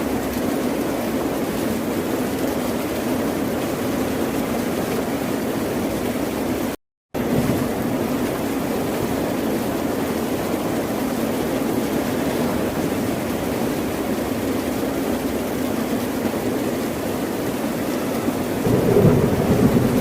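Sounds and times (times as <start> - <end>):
ocean waves washing: 18.4 - 20.0.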